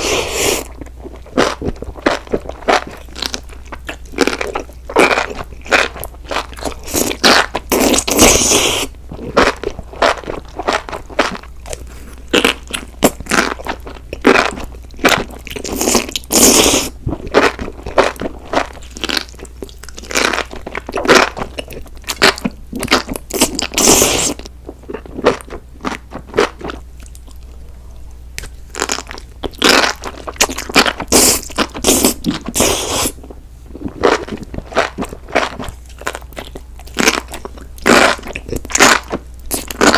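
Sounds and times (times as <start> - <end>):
crunchy biting and chewing: 0.0 - 27.6, 28.4 - 39.9.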